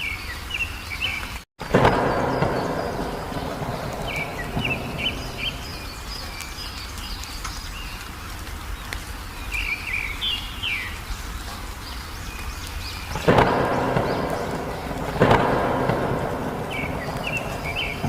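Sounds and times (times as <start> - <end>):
songbirds chirping: 0.0 - 18.0
low background rumble: 2.0 - 7.2.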